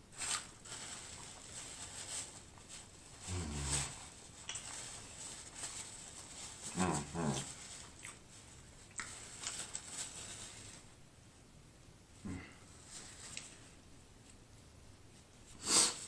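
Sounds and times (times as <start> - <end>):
person humming mm: 3.2 - 4.0, 12.2 - 12.6
person chewing with lip smacks: 7.9 - 8.2.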